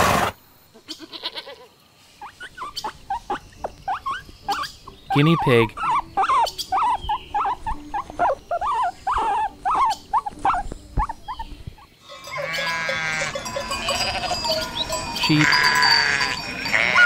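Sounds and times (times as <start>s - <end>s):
sheep bleating: 0.8s - 1.7s, 12.0s - 17.0s
guinea pig squeaking: 2.2s - 11.9s.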